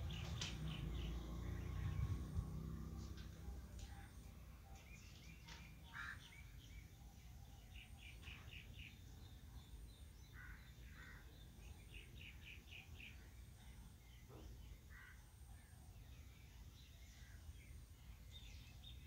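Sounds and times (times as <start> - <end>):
faint birds chirping: 0.0 - 19.0.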